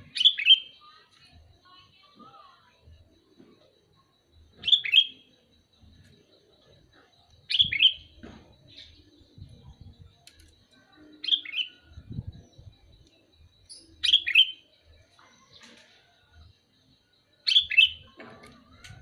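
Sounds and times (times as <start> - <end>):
bulbul calling: 0.0 - 1.5, 4.5 - 16.1, 17.4 - 19.0.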